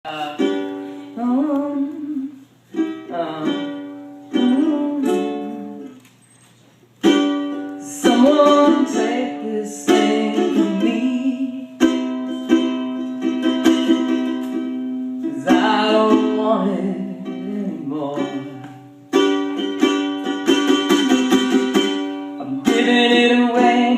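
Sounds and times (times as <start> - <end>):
person singing: 0.0 - 6.0, 7.8 - 12.9, 15.2 - 18.8, 20.8 - 23.9
ukulele strummed chords: 0.0 - 6.0, 7.0 - 23.9.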